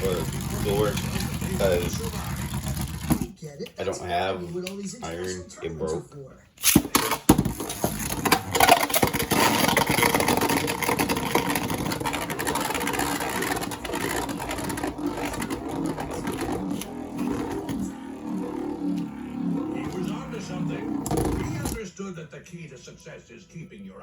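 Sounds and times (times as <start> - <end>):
spinning tops rattling whir: 0.0 - 3.3, 6.7 - 21.8.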